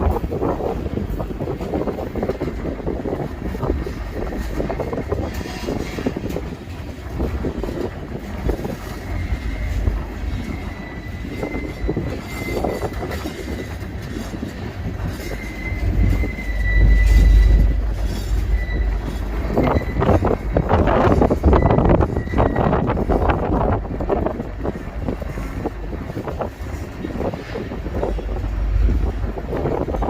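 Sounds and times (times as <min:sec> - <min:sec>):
freight train rumble: 0:00.0 - 0:30.0
high wheel squeal: 0:08.4 - 0:23.6.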